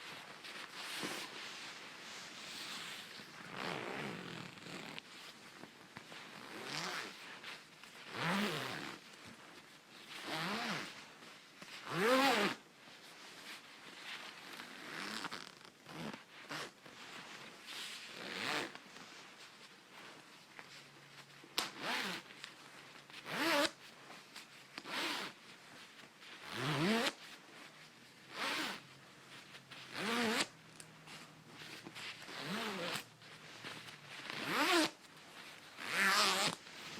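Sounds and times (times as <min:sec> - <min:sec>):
coat zipper zipping: 0:00.1 - 0:05.0, 0:06.3 - 0:09.0, 0:10.1 - 0:11.0, 0:11.8 - 0:12.6, 0:14.2 - 0:17.4, 0:18.1 - 0:18.8, 0:21.6 - 0:22.3, 0:23.2 - 0:23.8, 0:24.8 - 0:25.4, 0:26.4 - 0:27.4, 0:28.2 - 0:30.6, 0:31.6 - 0:33.1, 0:33.7 - 0:35.0, 0:35.7 - 0:36.9.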